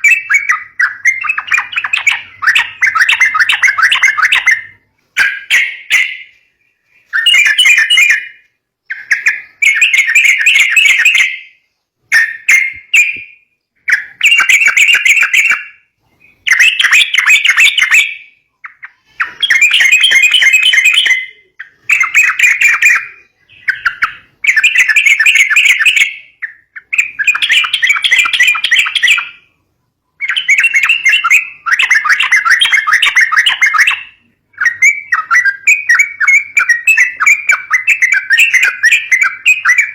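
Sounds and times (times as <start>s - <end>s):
bird chattering calls: 0.0s - 13.2s, 30.2s - 39.9s.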